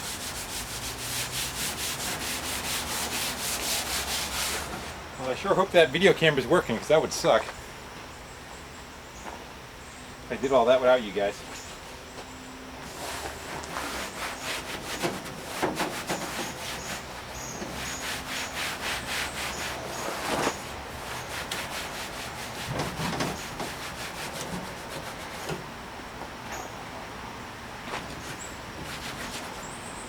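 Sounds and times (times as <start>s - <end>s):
rubbing strokes on painted metal: 0.0s - 5.0s, 12.8s - 25.7s, 28.1s - 30.0s.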